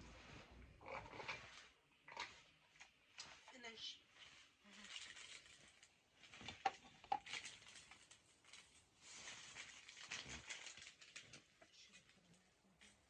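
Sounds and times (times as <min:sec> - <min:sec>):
plastic packaging crinkling: 0:04.6 - 0:13.0.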